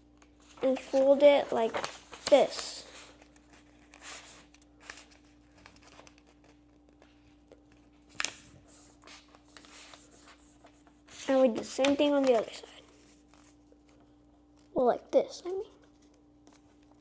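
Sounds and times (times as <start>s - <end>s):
paper rustling and crinkling: 0.0s - 14.8s, 15.7s - 17.0s
faint steady hum: 0.0s - 17.0s.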